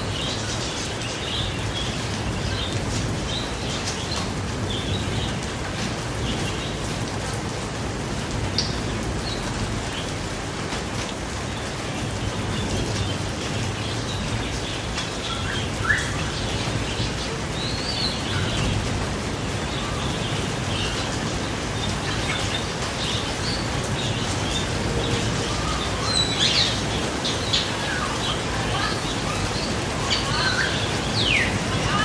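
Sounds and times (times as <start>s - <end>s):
birds chirping: 0.0s - 32.0s
steady hiss: 0.0s - 32.0s.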